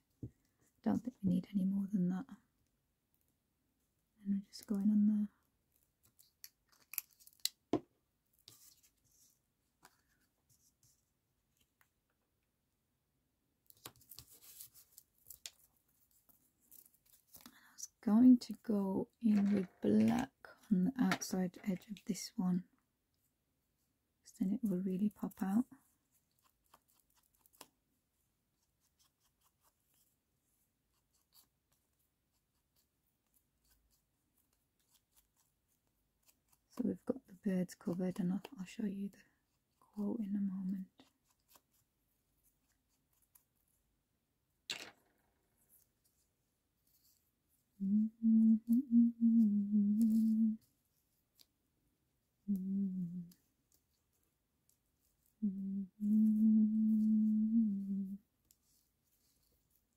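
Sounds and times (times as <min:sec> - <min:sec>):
paper rustling: 0:13.7 - 0:17.5.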